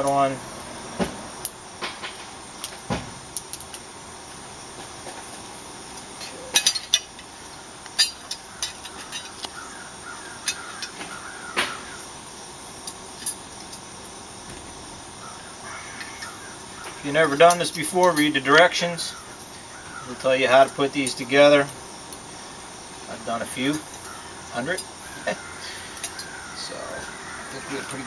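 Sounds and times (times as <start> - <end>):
small metal parts clicking: 6.0 - 9.6, 25.7 - 26.4.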